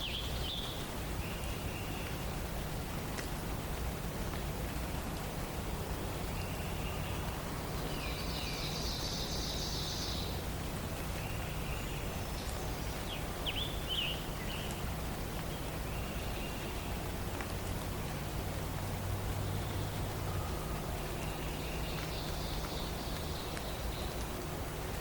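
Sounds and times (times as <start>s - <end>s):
low background noise: 0.0s - 25.0s
songbirds singing: 0.0s - 25.0s.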